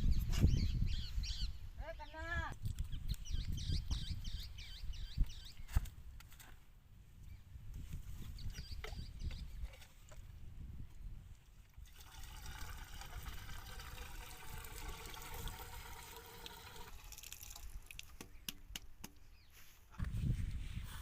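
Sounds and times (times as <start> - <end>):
water trickling from a pipe: 11.6 - 18.3.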